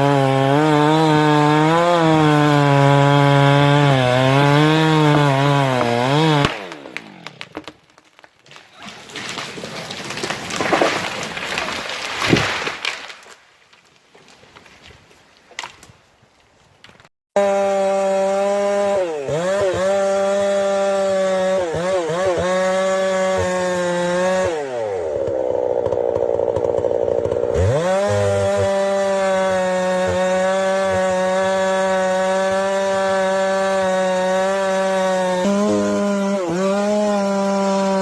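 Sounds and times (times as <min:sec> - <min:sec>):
chainsaw cutting: 0:00.0 - 0:07.8, 0:17.4 - 0:38.0.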